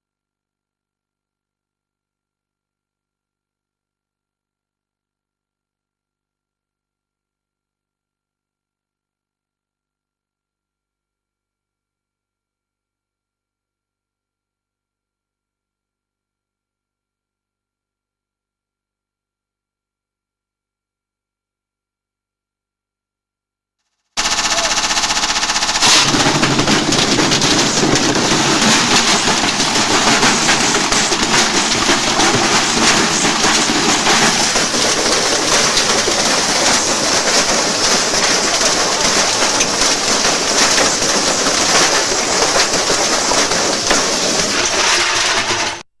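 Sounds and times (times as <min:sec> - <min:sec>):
motor hum: 0:24.2 - 0:34.6
washing machine drum hammering: 0:24.2 - 0:44.4.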